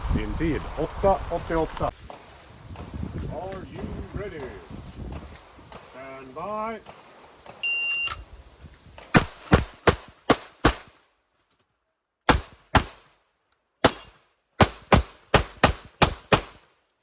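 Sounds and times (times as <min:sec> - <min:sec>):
pistol shots: 0:09.1 - 0:11.0, 0:12.3 - 0:13.1, 0:13.8 - 0:16.7.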